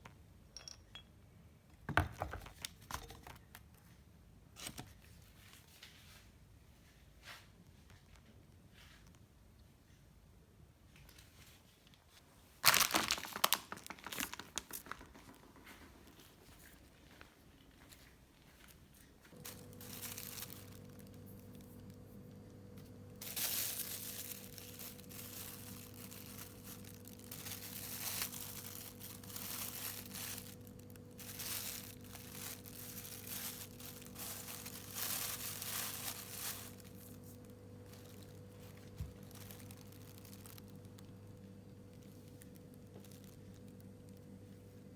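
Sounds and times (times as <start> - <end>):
low appliance hum: 0.0 - 44.9
material crinkling and rustling: 11.2 - 22.1, 22.8 - 44.4.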